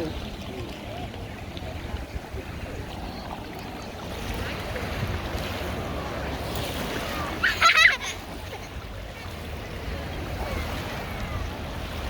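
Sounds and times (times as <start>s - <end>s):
wind rumbling on microphone: 0.0s - 7.4s
faint voices: 0.0s - 12.0s.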